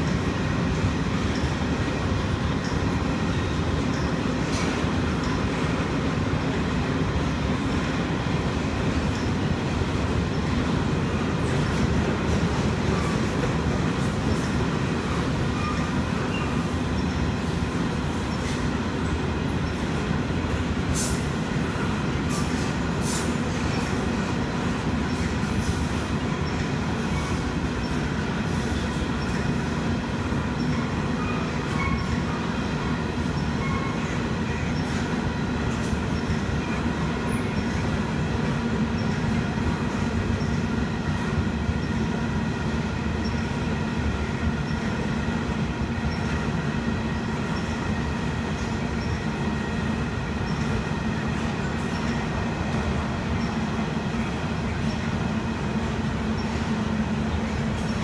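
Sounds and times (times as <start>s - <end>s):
train wheels rumbling on rails: 0.0s - 58.0s
wheel squeals: 15.5s - 17.4s, 30.6s - 32.5s, 33.4s - 35.0s.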